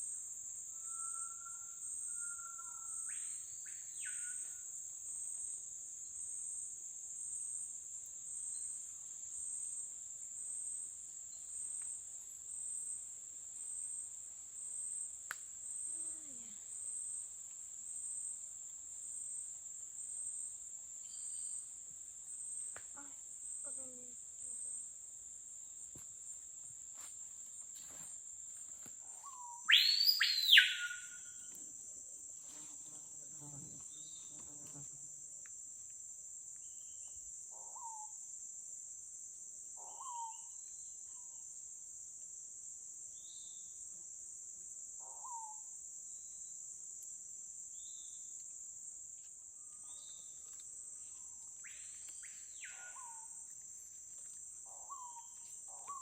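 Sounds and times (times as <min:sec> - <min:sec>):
insects droning: 0:00.0 - 0:56.0
small birds chirping: 0:29.2 - 0:31.2
bird loud sweeping whistle: 0:29.7 - 0:31.2.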